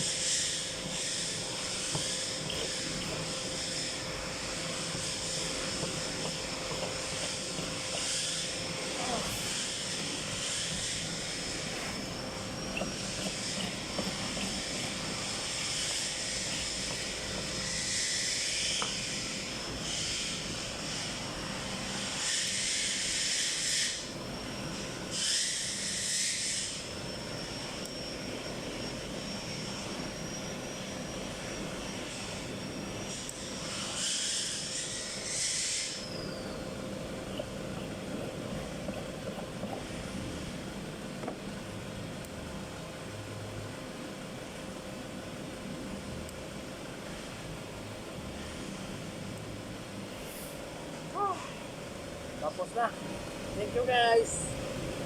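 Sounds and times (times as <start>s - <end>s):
small motor whining: 0.0s - 20.5s
low steady hum: 0.0s - 22.2s, 26.7s - 55.0s.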